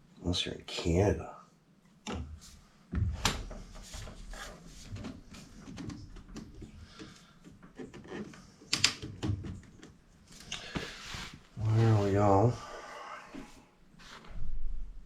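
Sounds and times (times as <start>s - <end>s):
plastic pipe clicks and knocks: 5.0s - 10.0s.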